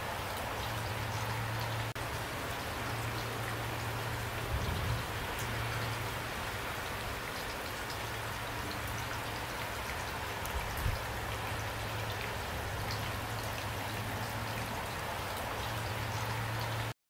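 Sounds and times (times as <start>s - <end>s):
rain hissing: 0.0s - 17.0s
raindrop ticks: 0.6s - 6.2s, 6.8s - 16.9s.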